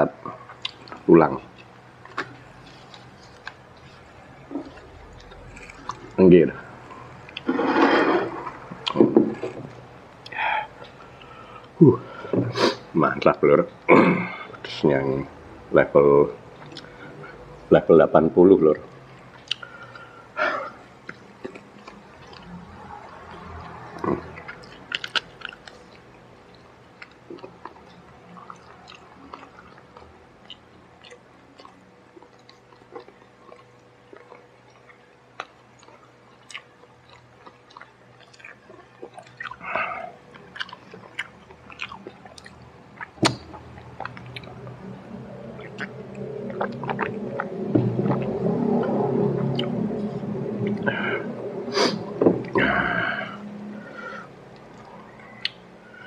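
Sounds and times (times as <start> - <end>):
man chewing crispy chicken: 0.3 - 12.8, 18.9 - 50.0
wet mouth clicks: 40.4 - 49.0.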